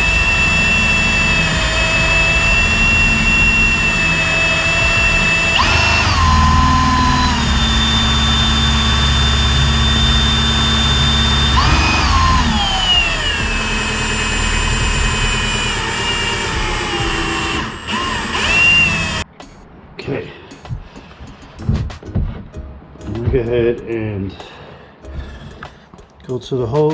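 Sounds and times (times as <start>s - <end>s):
oil pump whining: 0.0s - 19.2s.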